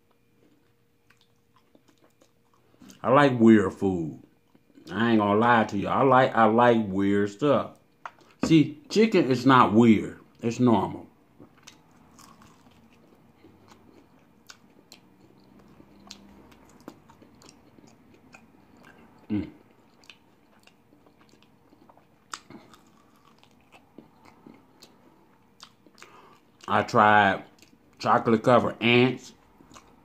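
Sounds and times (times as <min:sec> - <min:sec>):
person chewing crisp food: 0:00.0 - 0:03.0, 0:11.3 - 0:28.0, 0:29.2 - 0:30.0.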